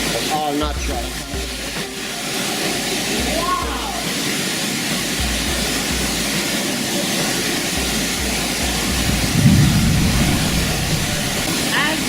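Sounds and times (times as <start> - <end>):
waterfall rushing: 0.0 - 12.0
low rumble: 8.8 - 11.6.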